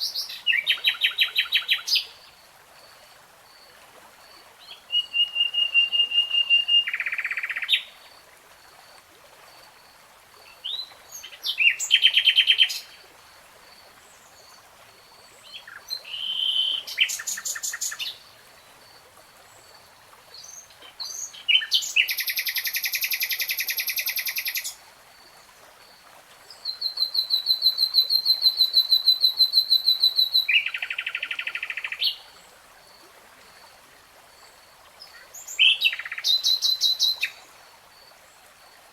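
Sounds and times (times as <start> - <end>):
nightingale singing: 35.1 - 37.4.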